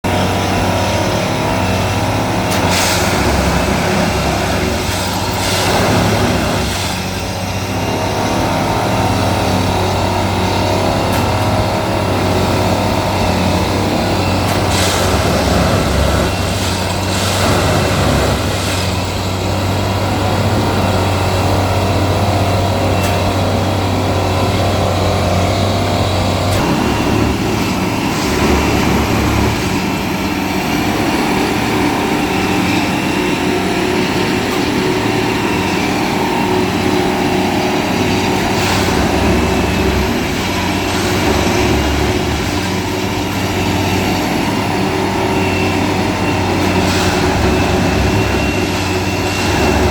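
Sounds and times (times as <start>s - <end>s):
heavy engine droning: 0.0s - 49.9s.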